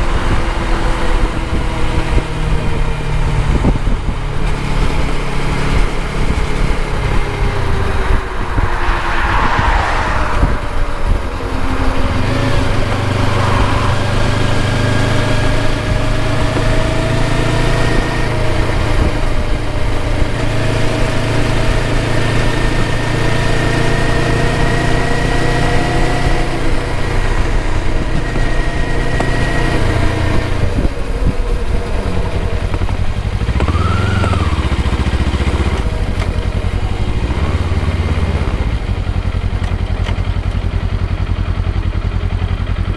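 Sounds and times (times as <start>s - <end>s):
wind and road noise: 0.0s - 42.9s
motorcycle engine running: 11.4s - 42.9s.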